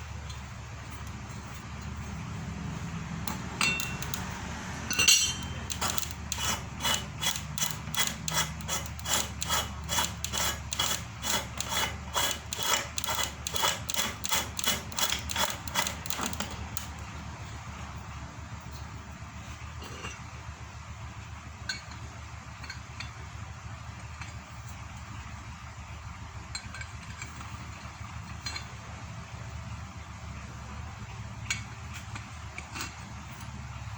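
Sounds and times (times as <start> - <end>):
metallic scraping strokes: 3.3 - 16.9
loud metal clank: 4.9 - 6.0.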